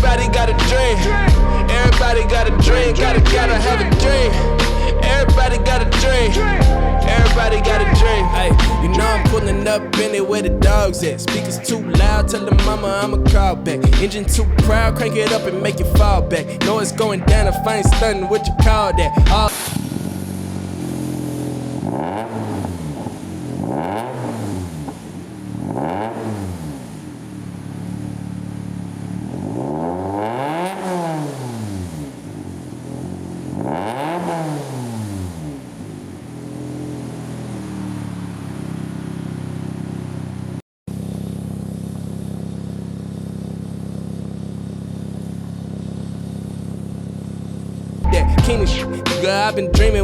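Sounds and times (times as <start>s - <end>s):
car engine idling: 0.0s - 21.9s, 35.8s - 50.0s
car engine revving: 0.0s - 50.0s.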